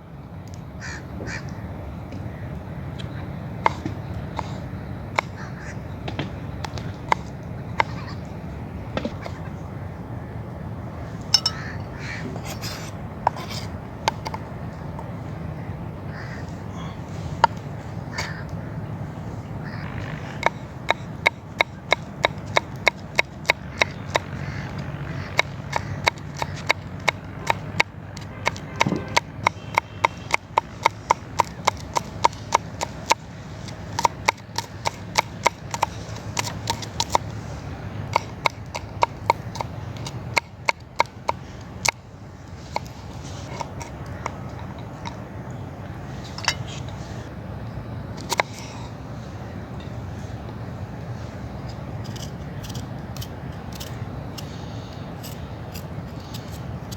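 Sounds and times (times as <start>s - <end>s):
knife chopping on wooden board: 25.4s - 37.3s, 38.1s - 42.0s, 42.7s - 43.9s.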